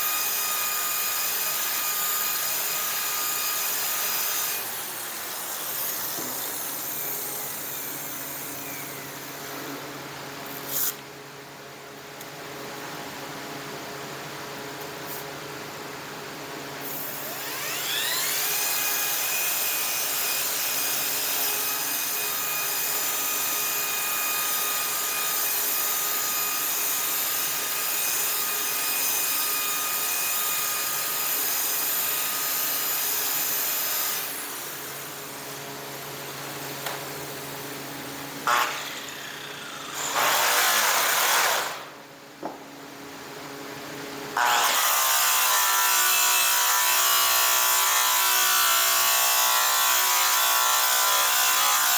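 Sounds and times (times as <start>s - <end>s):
electric power tool whining: 38.4s - 42.0s.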